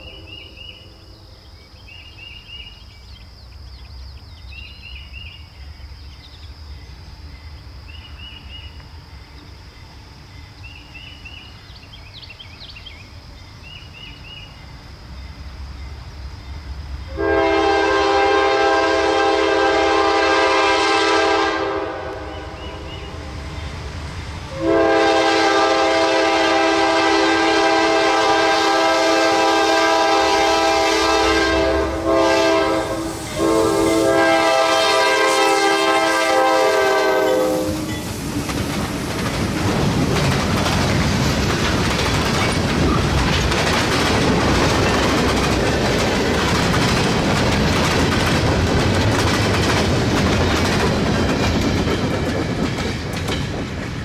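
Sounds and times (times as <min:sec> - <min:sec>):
locomotive air horn blasts: 0:17.1 - 0:22.8, 0:24.5 - 0:38.0
wheels clattering on rail: 0:37.2 - 0:54.0.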